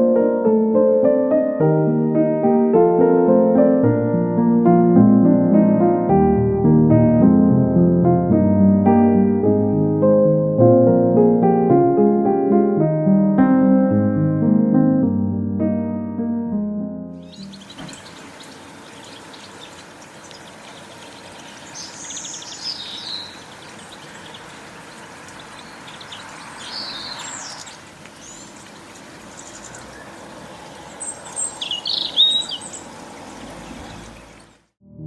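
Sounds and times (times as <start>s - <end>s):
small birds calling: 17.2s - 34.7s
outdoor background hiss: 17.2s - 34.8s.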